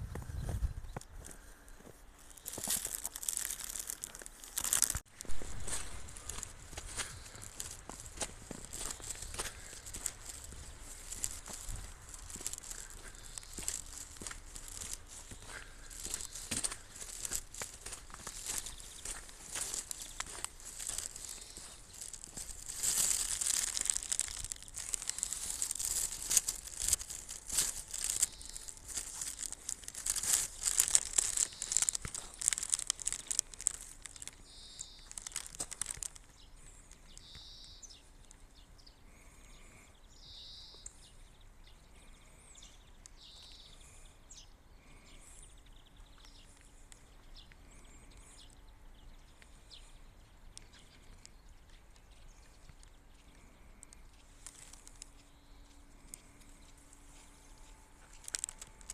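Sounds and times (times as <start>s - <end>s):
footsteps crunching through snow: 0.0s - 37.6s, 54.1s - 58.9s
small bird calling: 0.2s - 58.9s.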